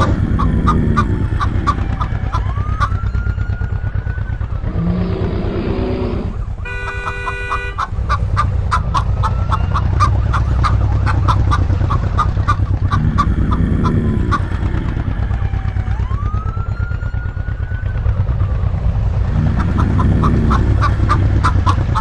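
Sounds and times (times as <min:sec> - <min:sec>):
chicken clucking: 0:00.0 - 0:03.0, 0:06.7 - 0:15.1, 0:19.3 - 0:22.0
drawn-out chicken call: 0:00.0 - 0:03.1, 0:06.6 - 0:15.4, 0:19.3 - 0:22.0
motorcycle engine droning: 0:00.0 - 0:22.0.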